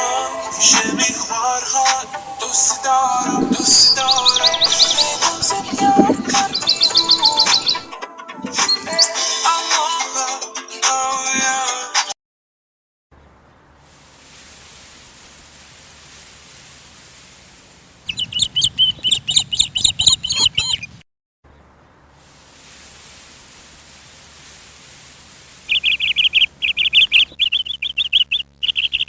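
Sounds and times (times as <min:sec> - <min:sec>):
bird chirping high notes: 0:00.0 - 0:07.9, 0:25.7 - 0:29.0
faint steady hiss: 0:00.0 - 0:07.9, 0:13.2 - 0:18.8, 0:21.5 - 0:27.4.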